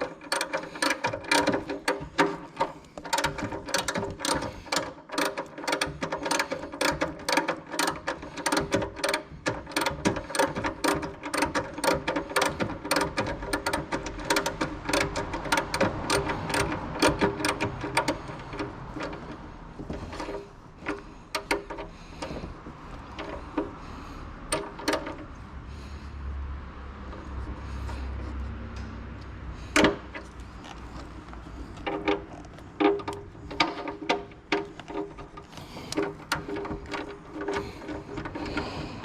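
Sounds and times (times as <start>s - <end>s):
ratchet wrench clicking: 0.0s - 19.3s.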